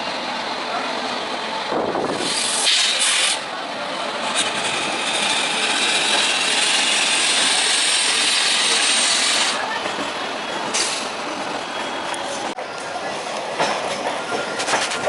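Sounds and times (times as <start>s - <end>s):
train wheels rushing on track: 0.0s - 15.0s.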